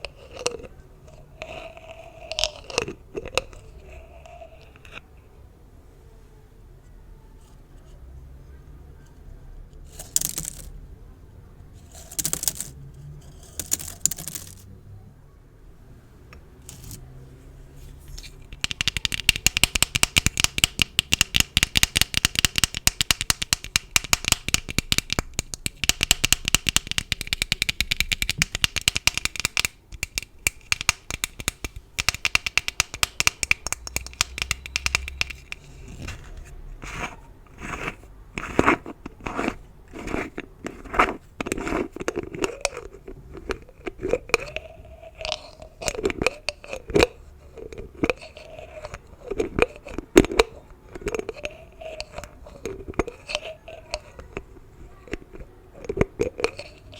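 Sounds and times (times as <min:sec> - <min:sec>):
gift bows crackling: 0:09.9 - 0:10.7, 0:11.8 - 0:12.8, 0:13.4 - 0:14.7.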